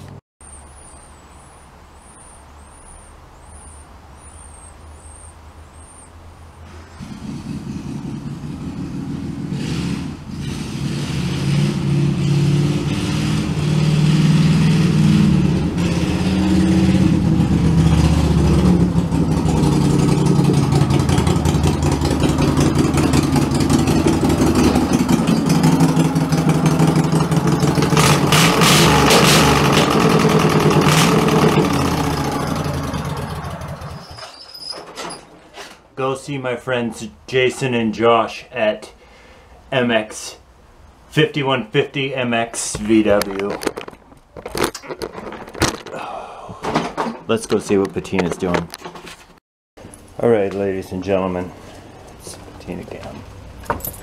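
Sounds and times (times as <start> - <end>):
tractor engine revving: 6.7 - 35.2.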